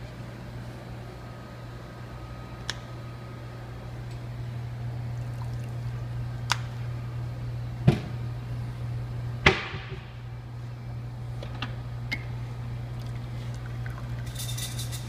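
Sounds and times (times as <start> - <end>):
espresso machine humming: 0.7 - 9.4.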